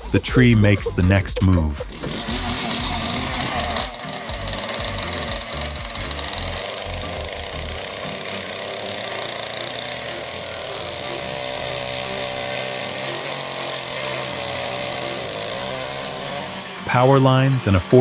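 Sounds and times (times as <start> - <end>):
chainsaw engine running: 0.0 - 18.0.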